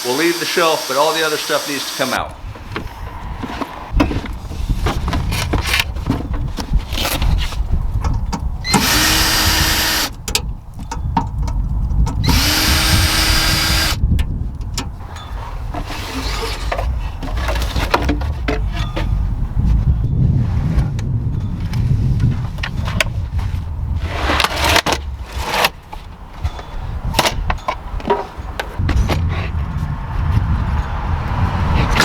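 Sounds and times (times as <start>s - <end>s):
cordless drill motor: 0.0s - 2.4s, 8.7s - 10.1s, 12.2s - 14.0s.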